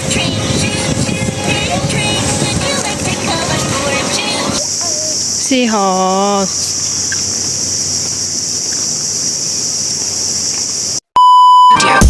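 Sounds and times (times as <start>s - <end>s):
insects buzzing: 0.0s - 11.0s
electronic beep tone: 11.2s - 12.0s.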